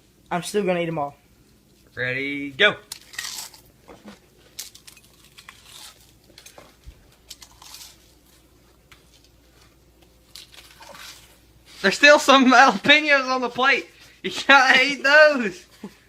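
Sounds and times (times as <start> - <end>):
person crunching potato chips: 2.9 - 3.7, 4.5 - 6.6, 7.2 - 8.5, 10.2 - 11.4.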